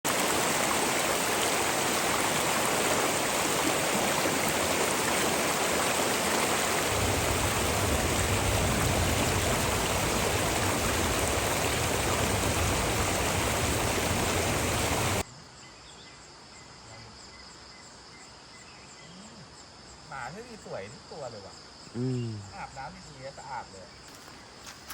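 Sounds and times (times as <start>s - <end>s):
waterfall roaring: 0.1s - 15.2s
insects chirping: 0.2s - 24.9s.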